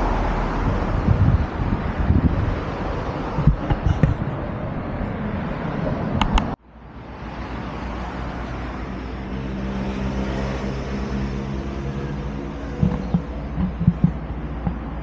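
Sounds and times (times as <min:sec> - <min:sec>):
vehicle engine humming: 0:09.4 - 0:15.0
short knocks: 0:12.8 - 0:15.0.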